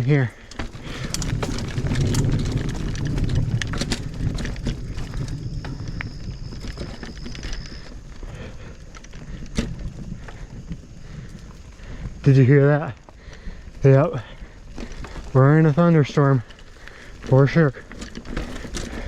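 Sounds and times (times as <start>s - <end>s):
mountain bike rattling on rocks: 0.0s - 19.0s
thunder rumbling: 0.6s - 8.6s.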